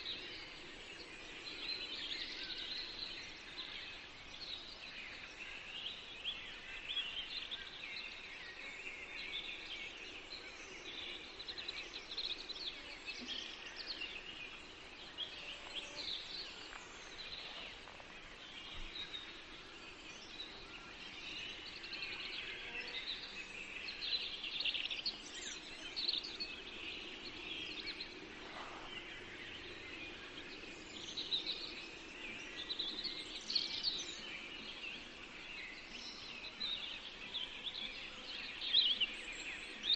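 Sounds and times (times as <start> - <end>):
faint forest ambience hiss: 0.0 - 39.9
songbirds chirping and trilling: 0.0 - 39.9.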